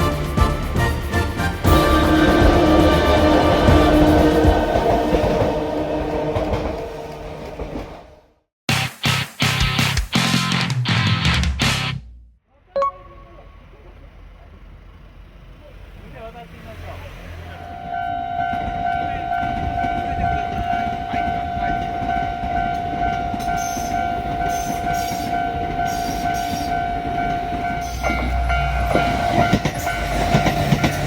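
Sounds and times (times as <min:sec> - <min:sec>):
steady high tone: 0:00.0 - 0:07.3, 0:12.8 - 0:14.1
rail clatter: 0:00.0 - 0:08.2, 0:18.4 - 0:31.0
train rumbling: 0:00.0 - 0:08.4, 0:13.0 - 0:31.0.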